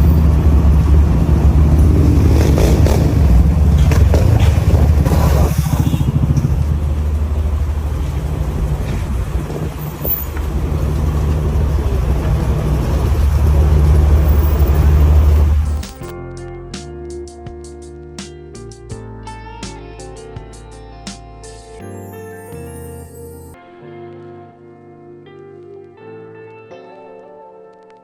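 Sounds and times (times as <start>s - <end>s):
vehicle engine rumbling: 0.0s - 16.1s.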